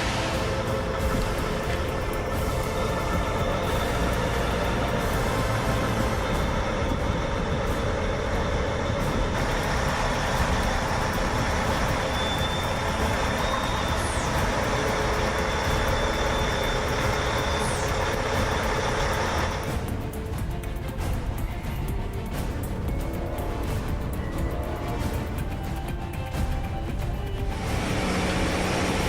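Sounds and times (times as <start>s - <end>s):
high squeaks: 0.0s - 20.1s
heavy truck engine running: 0.0s - 29.0s.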